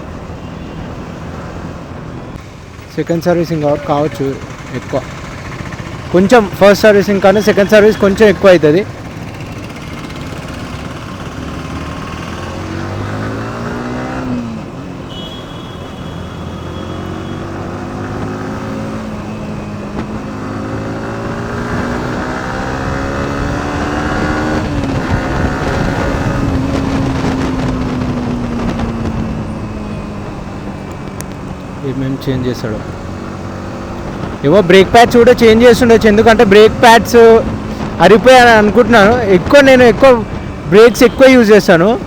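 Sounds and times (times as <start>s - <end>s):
road and wind rush: 0.0s - 42.0s
motorcycle engine accelerating: 3.9s - 15.0s, 16.2s - 41.1s.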